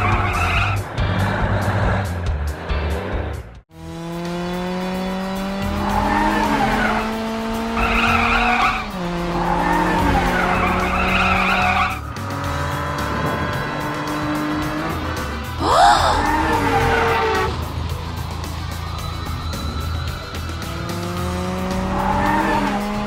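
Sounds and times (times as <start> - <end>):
background music: 0.0 - 3.6, 4.2 - 23.0
cartoon car engine revving: 0.0 - 17.7, 20.6 - 23.0
tyres squealing: 7.8 - 12.0, 15.6 - 17.5.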